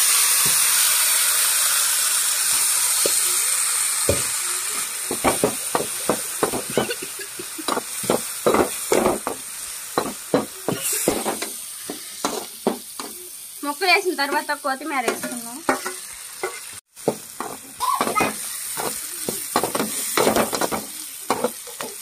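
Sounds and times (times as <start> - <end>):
liver sizzling in hot oil: 0.0 - 22.0
spatula scraping and knocking pan: 5.1 - 13.2, 15.0 - 22.0.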